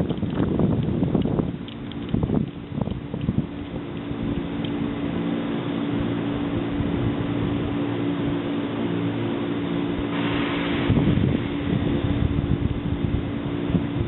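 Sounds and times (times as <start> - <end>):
electric train humming: 0.0 - 14.0
short hiss: 10.1 - 11.2.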